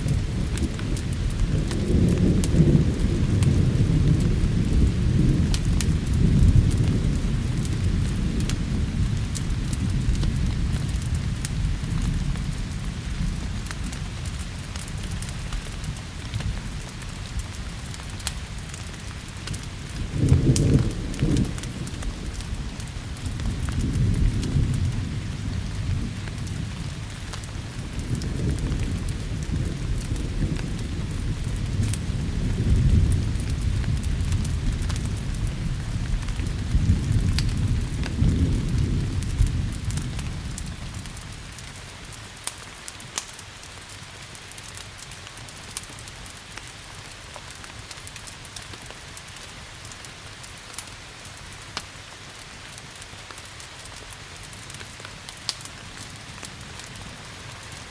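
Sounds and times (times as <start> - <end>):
thunder rumbling: 0.0 - 42.1
steady rain: 0.0 - 57.9
wood fire crackling: 0.0 - 57.9.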